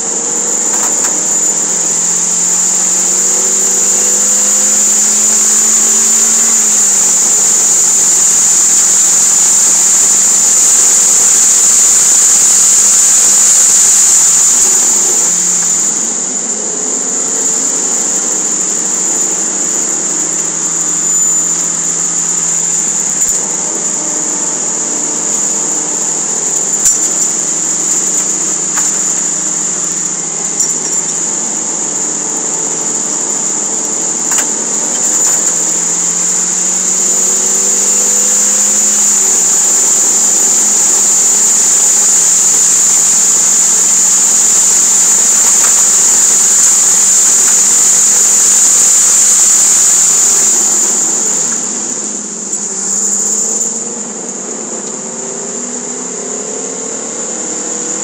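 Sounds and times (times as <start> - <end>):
loud high hiss: 0.0 - 58.0.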